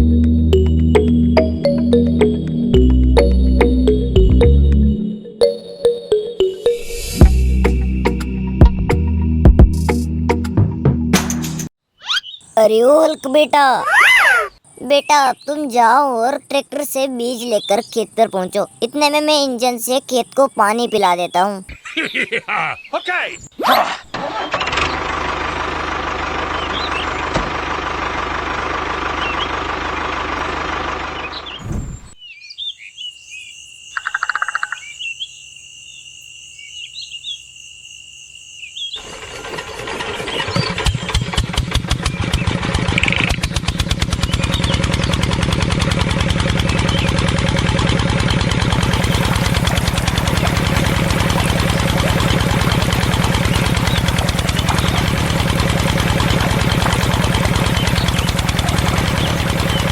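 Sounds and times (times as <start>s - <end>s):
bird chirps: 12.0s - 23.6s, 31.2s - 41.2s, 53.3s - 55.3s, 56.5s - 59.9s
small engine chugging: 24.2s - 31.6s, 39.0s - 59.9s.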